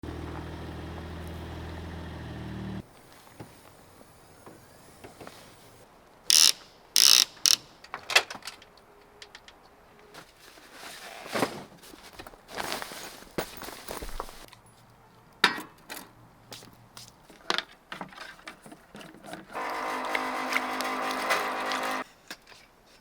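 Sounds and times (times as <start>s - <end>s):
vehicle engine humming: 0.0s - 2.9s
short rasping bursts: 6.3s - 7.6s, 19.6s - 22.0s
sharp clicks: 6.3s - 7.7s.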